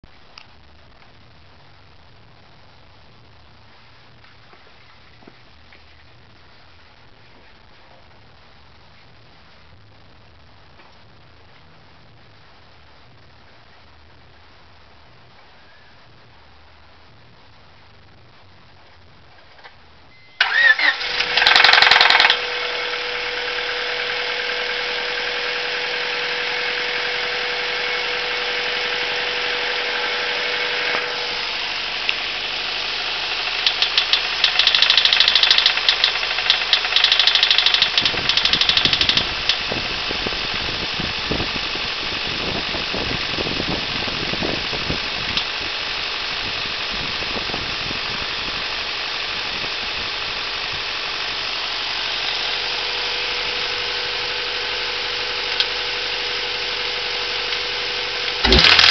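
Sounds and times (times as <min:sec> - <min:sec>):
engine rod knocking: 0:21.3 - 0:22.4, 0:33.6 - 0:39.7, 0:58.5 - 0:58.9
car engine revving and idling: 0:39.3 - 0:58.9.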